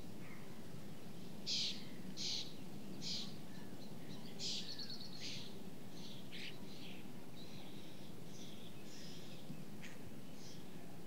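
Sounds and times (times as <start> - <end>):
low background noise: 0.0 - 11.0.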